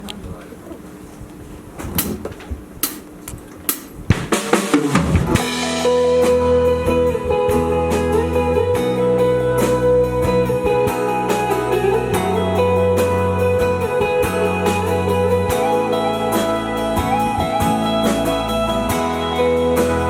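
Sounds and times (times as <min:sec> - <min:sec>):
drum fill: 0:04.1 - 0:08.9
rock band playing: 0:04.1 - 0:20.0.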